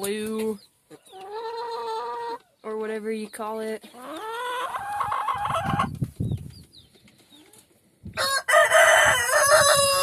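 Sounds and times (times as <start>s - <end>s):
rooster crowing: 8.2s - 10.0s.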